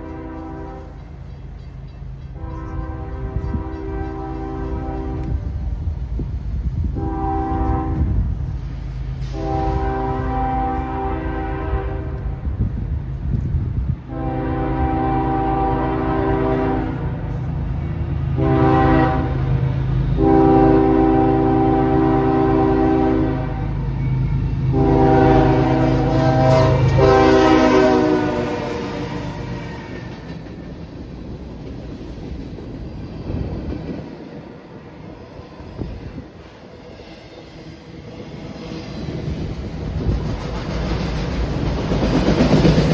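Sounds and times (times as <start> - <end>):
locomotive air horn blasts: 0.0 - 1.0, 2.3 - 5.7, 6.9 - 8.3, 9.2 - 12.5, 14.0 - 17.3, 18.4 - 19.6, 20.2 - 23.8, 24.6 - 30.3
train engine rumbling: 0.0 - 42.9.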